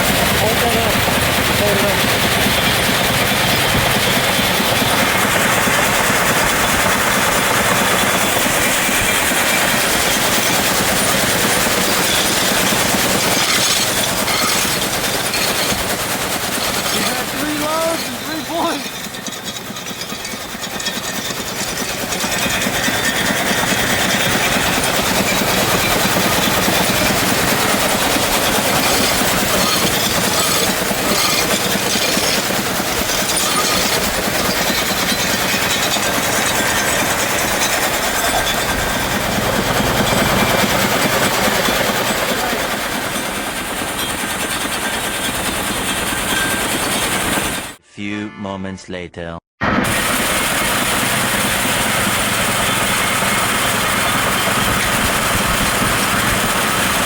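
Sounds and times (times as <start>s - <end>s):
shaker table rattling gravel: 8.0s - 38.6s.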